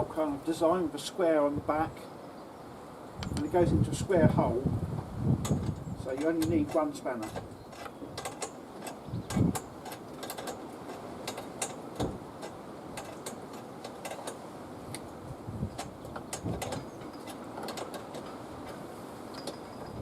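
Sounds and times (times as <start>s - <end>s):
metal spanner clicking on bolt: 5.4s - 18.4s
dull knocks: 12.0s - 12.3s.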